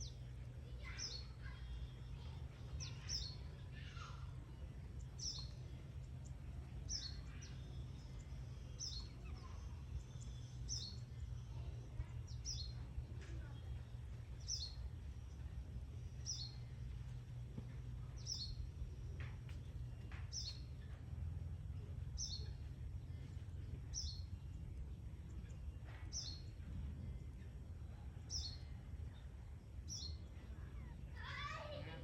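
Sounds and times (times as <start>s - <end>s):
low background rumble: 0.0s - 32.0s.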